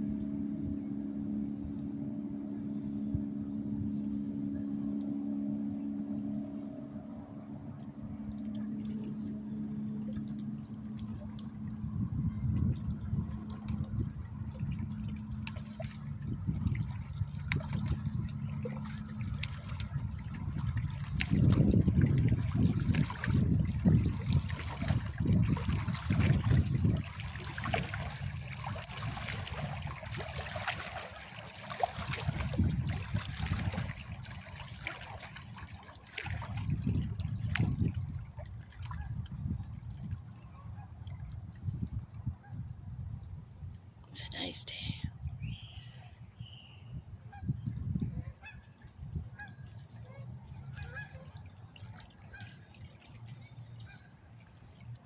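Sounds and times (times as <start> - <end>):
boat engine hum: 0.0 - 55.0
wake waves lapping and splashing: 4.4 - 42.5, 48.2 - 55.0.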